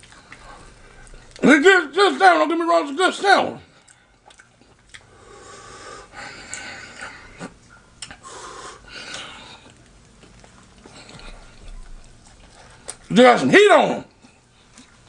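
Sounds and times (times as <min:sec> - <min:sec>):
man breathing heavily: 0:05.1 - 0:07.5, 0:08.2 - 0:09.7.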